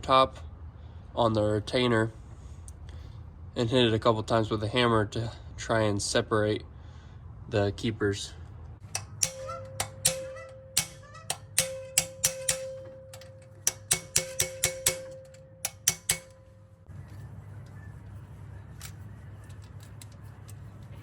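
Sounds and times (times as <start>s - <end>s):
low steady hum: 6.6s - 21.0s
hammer striking metal socket: 8.8s - 16.7s.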